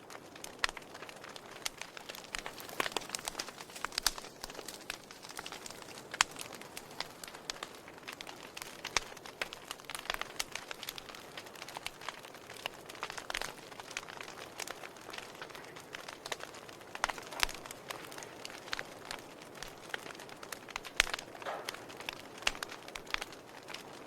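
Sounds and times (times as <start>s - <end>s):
wood fire crackling and popping: 0.0s - 24.0s
fire hissing: 0.1s - 24.0s.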